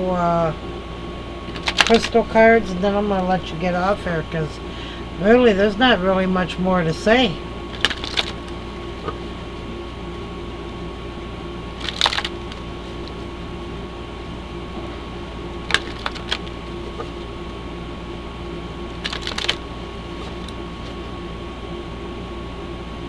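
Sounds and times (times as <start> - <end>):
steady background hum: 0.0 - 23.0
cards shuffling clicks and slaps: 1.5 - 2.2, 7.7 - 9.2, 11.8 - 13.3, 15.7 - 17.3, 18.9 - 21.1.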